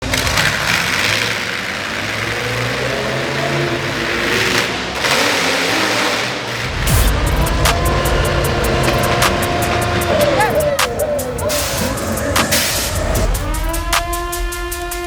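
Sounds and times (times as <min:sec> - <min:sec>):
truck engine running: 0:00.0 - 0:15.0
hissing surges: 0:06.5 - 0:15.0.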